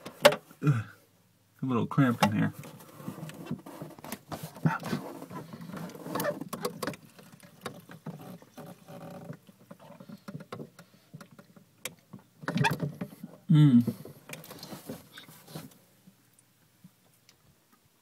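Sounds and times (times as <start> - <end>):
pipe squeaks and clicks: 3.2 - 13.1.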